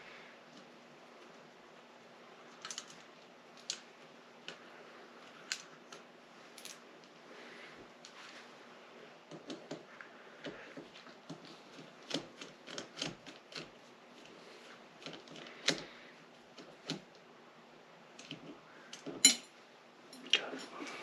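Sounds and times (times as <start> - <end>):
tools clicking and tapping: 18.2 - 19.5.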